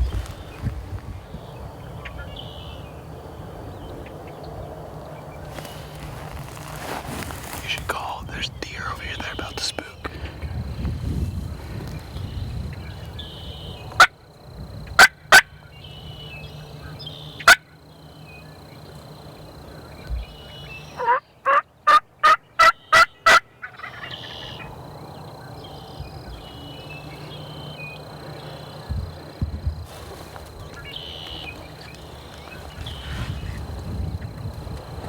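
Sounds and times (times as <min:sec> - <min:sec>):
wild turkey clucks: 0:17.3 - 0:17.6, 0:21.0 - 0:24.6
wild turkey yelps: 0:21.0 - 0:24.7.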